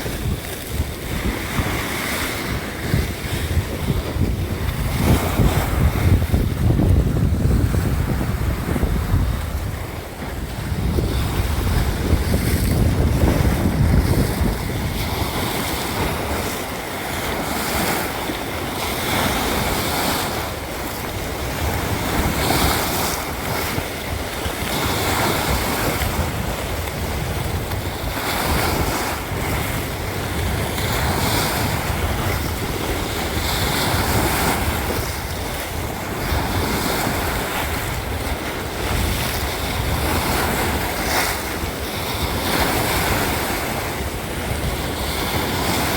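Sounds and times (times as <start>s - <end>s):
sea waves breaking on shore: 0.0s - 45.9s
wind buffeting microphone: 0.0s - 45.9s.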